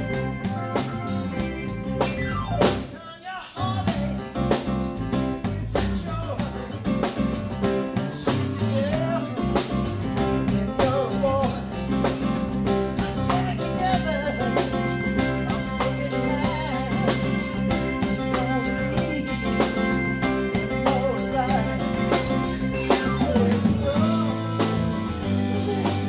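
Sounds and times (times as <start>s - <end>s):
lead melody bending in pitch: 0.0s - 2.9s, 14.0s - 26.0s
bass and guitar: 0.0s - 3.0s, 3.6s - 26.0s
drum kit beat: 0.0s - 3.0s, 3.6s - 26.0s
held high notes: 0.0s - 3.0s, 11.9s - 26.0s.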